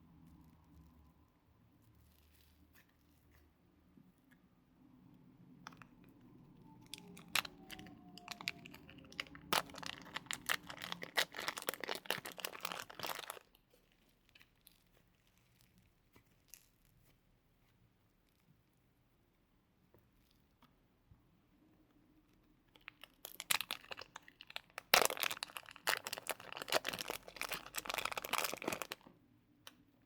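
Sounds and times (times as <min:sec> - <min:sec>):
slime crackling and popping: 0:06.7 - 0:16.9, 0:22.8 - 0:29.0.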